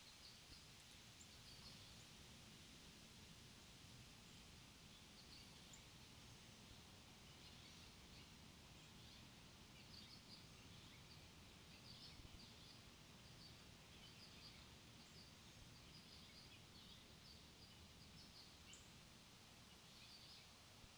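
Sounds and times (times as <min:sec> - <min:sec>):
small birds chirping: 0:00.0 - 0:02.1, 0:07.2 - 0:20.9
low background hiss: 0:00.0 - 0:20.9.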